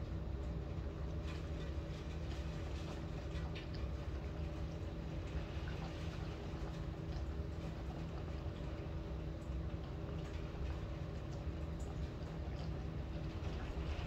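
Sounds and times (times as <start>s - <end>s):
water drips and taps: 5.2s - 14.0s.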